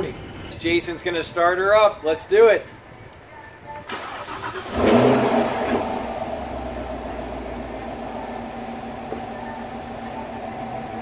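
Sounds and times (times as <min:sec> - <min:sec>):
car engine idling: 0:04.0 - 0:11.0.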